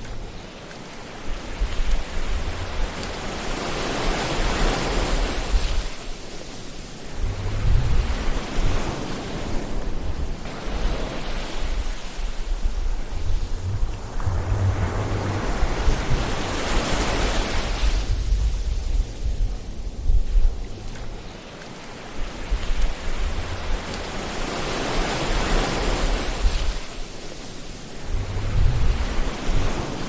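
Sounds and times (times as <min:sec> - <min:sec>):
waves breaking: 0:00.0 - 0:30.0
low surf rumble: 0:07.0 - 0:21.3, 0:27.9 - 0:30.0.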